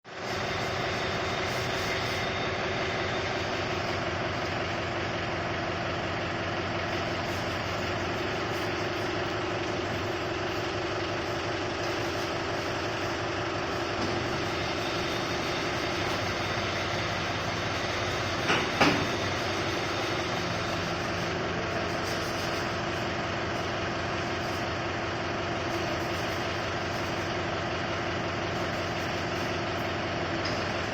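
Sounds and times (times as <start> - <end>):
tractor diesel engine running: 0.1 - 30.9
sharp knocks: 18.5 - 19.1.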